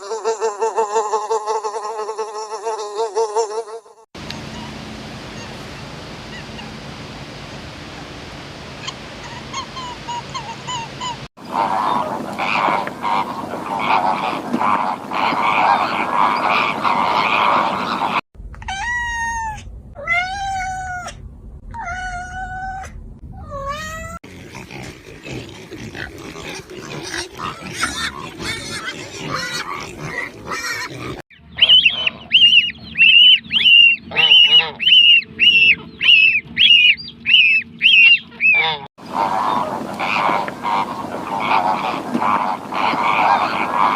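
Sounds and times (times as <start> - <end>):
farm animals calling: 8.8 - 18.2, 24.3 - 43.9
rapid high honking calls: 31.6 - 41.6.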